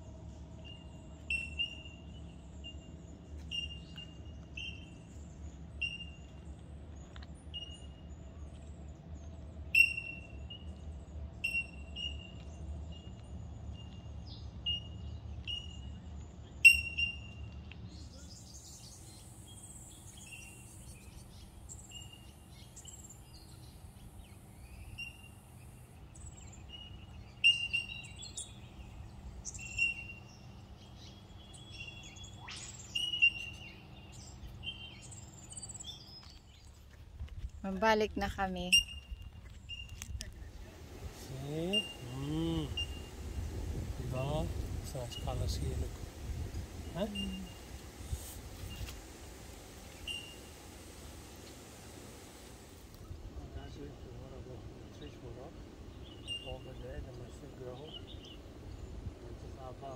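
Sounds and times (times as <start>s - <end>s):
birds chirping: 0.1s - 59.9s
low steady rumble: 17.2s - 59.9s
loud bird calls: 18.0s - 36.3s, 39.7s - 59.9s.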